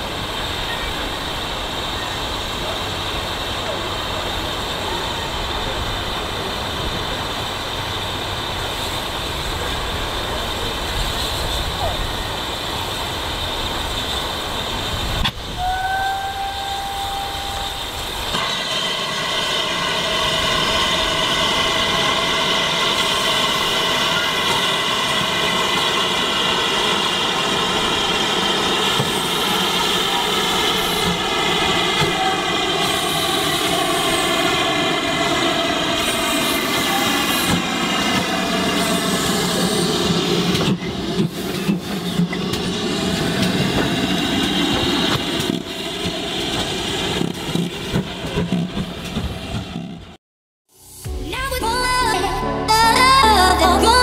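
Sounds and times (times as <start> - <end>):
train sound of sinking tones: 0.0 - 54.0
steam locomotive whistle: 15.4 - 27.1, 29.0 - 37.7.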